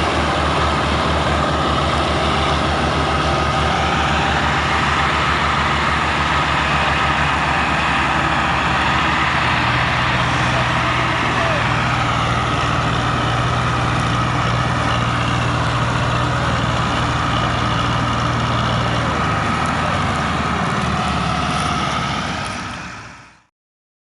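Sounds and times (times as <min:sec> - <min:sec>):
tractor diesel engine running: 0:00.0 - 0:23.5.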